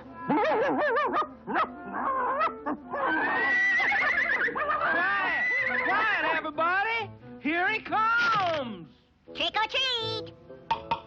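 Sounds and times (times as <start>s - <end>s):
horse whinnying: 2.0s - 6.2s.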